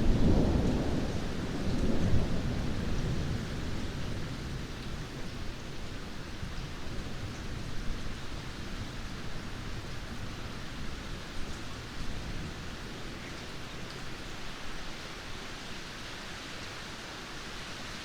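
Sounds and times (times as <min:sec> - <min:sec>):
thunder rumbling: 0:00.0 - 0:04.7
steady rainfall: 0:00.0 - 0:18.0.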